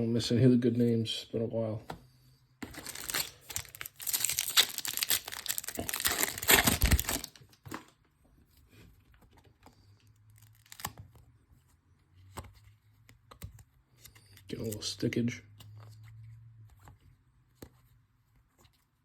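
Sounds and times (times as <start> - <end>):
wrapper tearing and crinkling: 2.6 - 7.9, 10.4 - 10.9.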